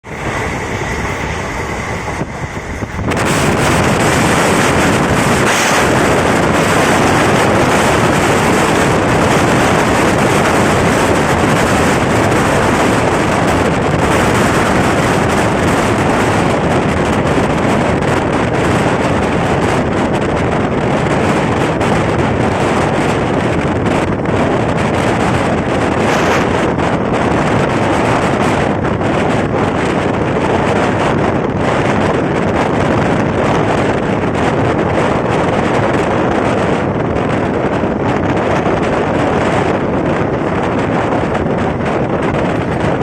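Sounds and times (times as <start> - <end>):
train rushing past: 0.0 - 28.9
wind buffeting microphone: 0.0 - 43.0.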